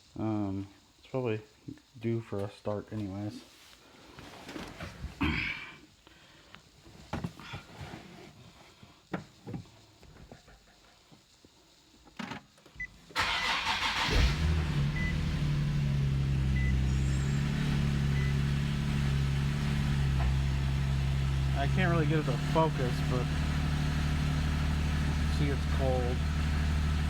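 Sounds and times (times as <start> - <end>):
starter motor cranking: 13.2 - 18.5
car engine idling: 13.2 - 27.0.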